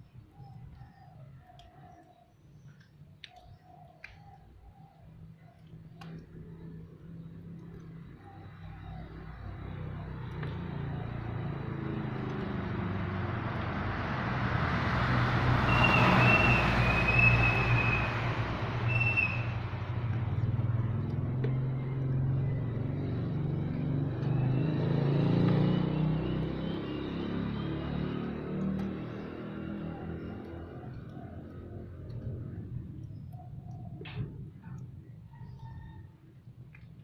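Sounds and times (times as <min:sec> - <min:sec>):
vehicle passing: 0:08.5 - 0:33.0.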